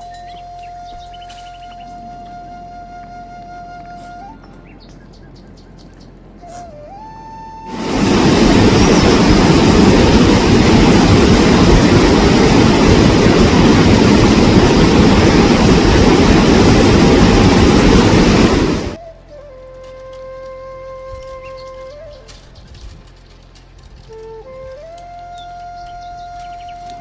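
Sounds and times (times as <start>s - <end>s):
loud rush of water: 7.7s - 19.0s.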